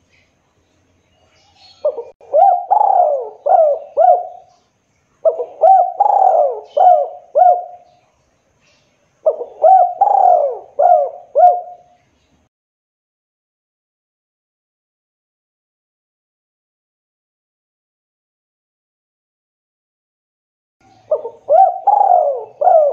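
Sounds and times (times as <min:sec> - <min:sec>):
dove cooing: 0:01.6 - 0:04.6, 0:05.2 - 0:07.9, 0:09.2 - 0:12.0, 0:20.9 - 0:22.9.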